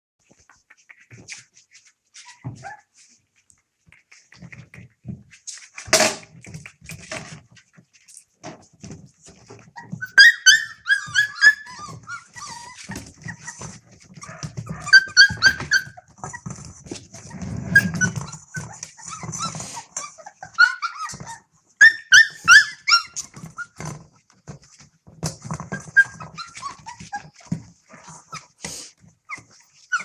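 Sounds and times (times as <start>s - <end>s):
puppies yelping and whining: 1.8s - 3.2s, 8.9s - 30.0s
eating clicks and smacks: 3.8s - 4.9s.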